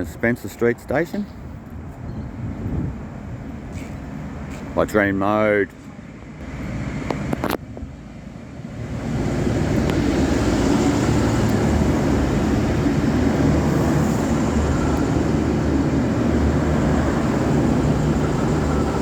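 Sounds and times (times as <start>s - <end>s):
train engine and wheel rumble: 0.0s - 19.0s.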